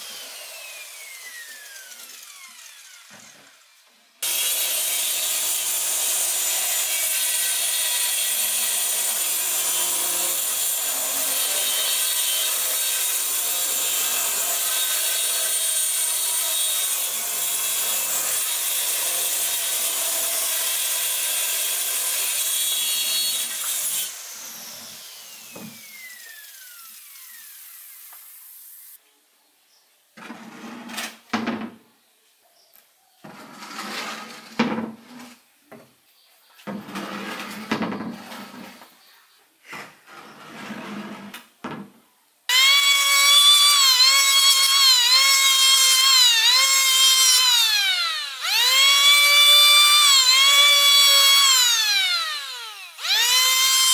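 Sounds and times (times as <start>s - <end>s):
circular saw cutting plastic: 0.0s - 3.6s, 4.2s - 29.0s, 42.5s - 53.9s.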